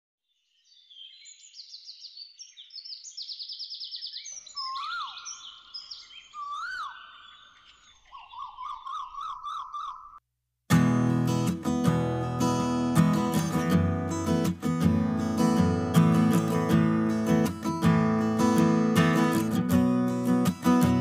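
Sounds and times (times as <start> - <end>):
birds trilling and chirping: 1.1 - 10.2
bird whistle rising and falling: 3.8 - 10.2.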